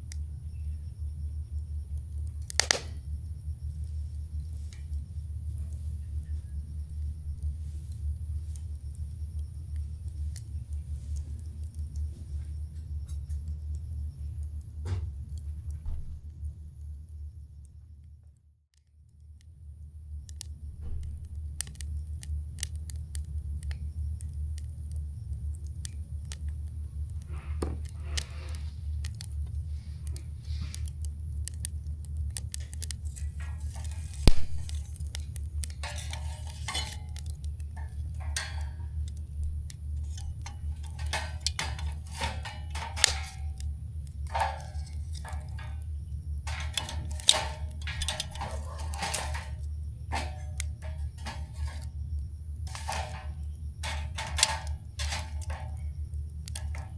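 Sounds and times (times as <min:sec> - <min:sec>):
campfire crackling and popping: 0:00.0 - 0:17.8, 0:19.0 - 0:56.9
steady low rumble: 0:00.0 - 0:18.4, 0:19.0 - 0:56.9.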